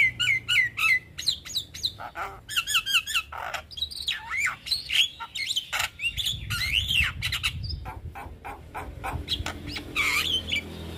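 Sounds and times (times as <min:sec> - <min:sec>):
bird singing whistled glides: 0:09.3 - 0:10.9.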